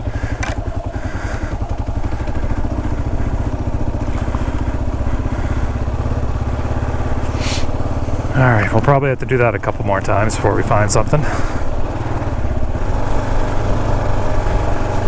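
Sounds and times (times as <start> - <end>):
motorcycle engine running low revs: 0.0 - 15.0.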